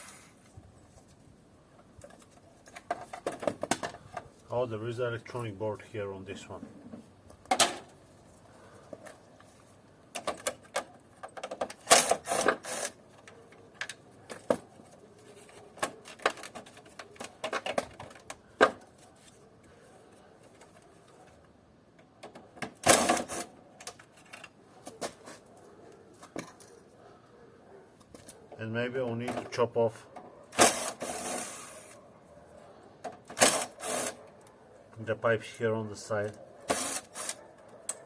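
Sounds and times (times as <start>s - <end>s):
plastic and metal parts rattling: 2.0s - 4.3s, 10.1s - 19.0s, 22.1s - 25.2s.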